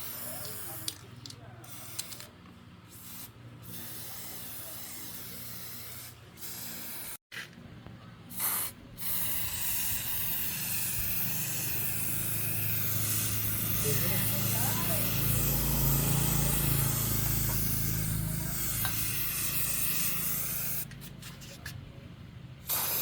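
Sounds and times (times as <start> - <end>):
spray gun hissing: 8.4 - 20.8.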